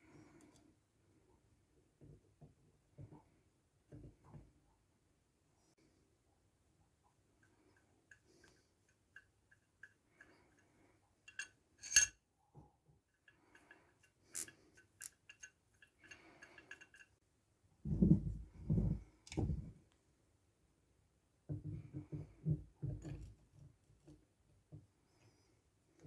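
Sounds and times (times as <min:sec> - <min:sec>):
metallic ticks and clinks: 0:11.3 - 0:12.1, 0:13.5 - 0:17.2.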